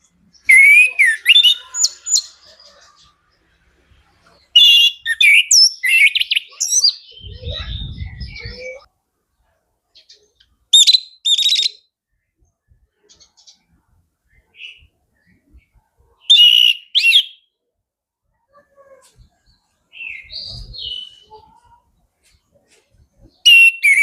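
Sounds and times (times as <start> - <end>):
thrush singing whistled phrases: 0.4 - 2.4, 4.6 - 8.9, 10.8 - 11.9, 16.2 - 17.5, 23.4 - 24.0.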